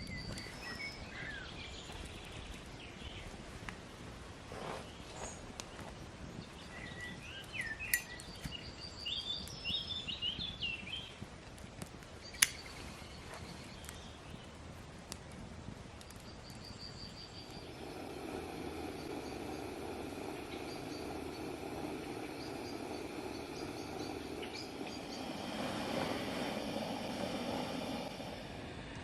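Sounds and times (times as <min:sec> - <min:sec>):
songbirds singing and trilling: 0:00.0 - 0:04.0, 0:04.8 - 0:28.4
sharp clicks: 0:11.8 - 0:12.8
low rumble: 0:17.4 - 0:29.0.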